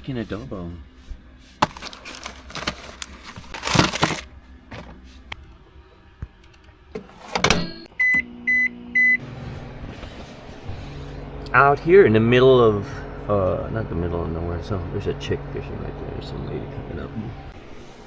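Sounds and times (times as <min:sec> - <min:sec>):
microwave humming: 0:01.3 - 0:18.0
handling rustling and knocks: 0:01.6 - 0:05.0
microwave keypad beeps: 0:08.0 - 0:09.2.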